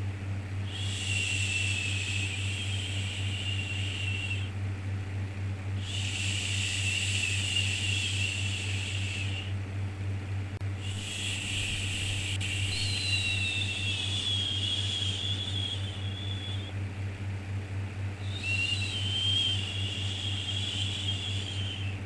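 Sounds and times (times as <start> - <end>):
steady low rumble: 10.4 - 16.8.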